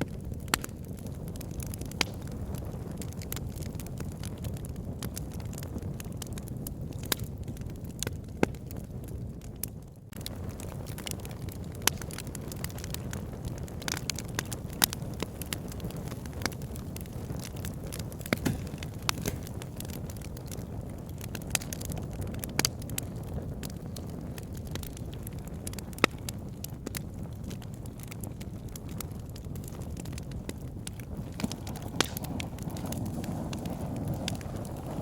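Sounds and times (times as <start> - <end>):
burning logs popping: 0.0 - 35.0
fire crackling: 0.0 - 35.0
fire rumbling: 0.0 - 35.0.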